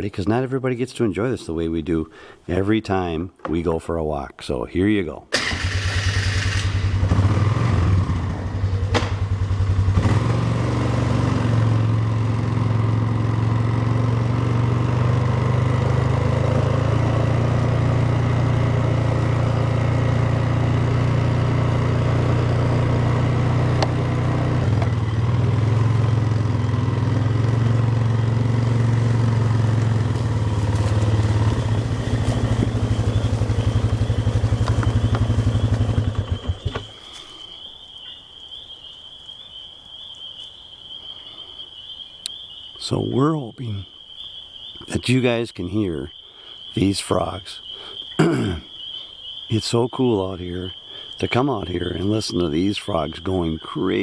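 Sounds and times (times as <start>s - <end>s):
atv engine running: 5.4s - 37.6s, 46.8s - 54.0s.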